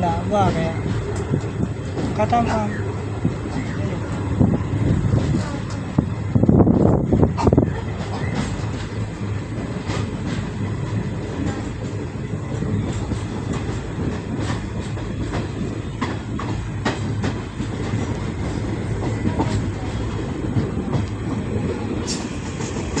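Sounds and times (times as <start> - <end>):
train wheels rumbling on rails: 0.0 - 23.0
sharp rail clicks: 0.8 - 4.2, 12.8 - 23.0.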